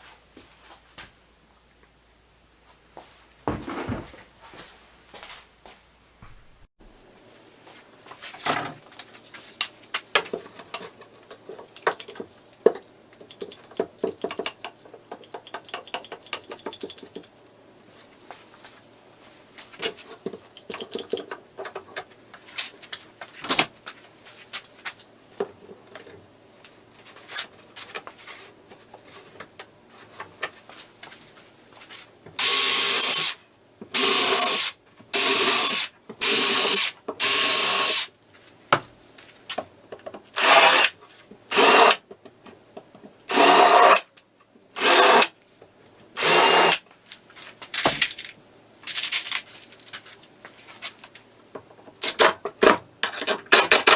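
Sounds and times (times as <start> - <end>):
cordless drill bursts: 32.4 - 33.4, 34.0 - 38.1, 40.4 - 40.9, 41.5 - 42.0, 43.3 - 44.0, 44.8 - 45.3, 46.2 - 46.8
clicks and knocks of parts handled: 47.1 - 53.9.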